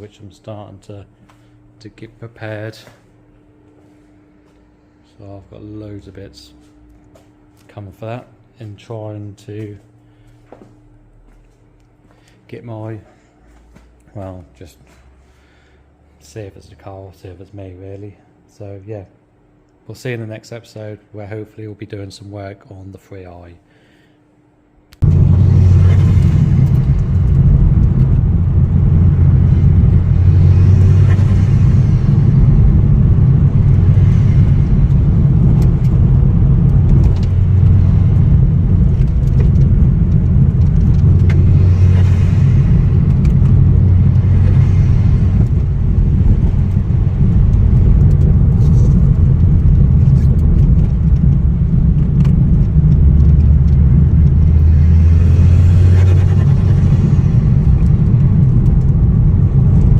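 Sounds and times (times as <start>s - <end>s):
car engine and road noise: 25.0s - 59.9s.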